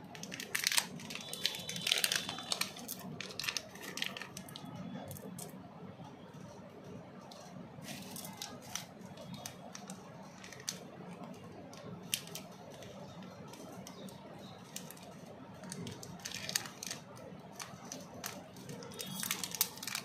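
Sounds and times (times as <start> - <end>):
wrappers crinkling: 0.0 - 5.5, 7.2 - 20.0.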